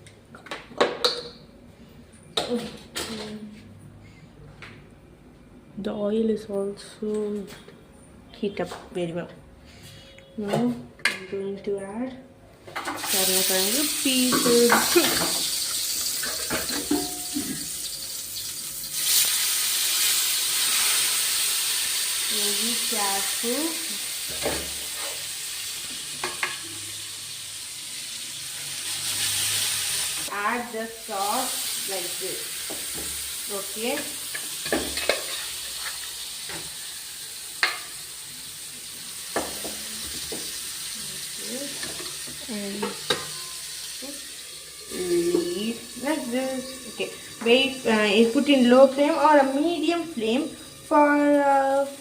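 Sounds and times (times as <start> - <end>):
food sizzling in hot oil: 12.8 - 52.0.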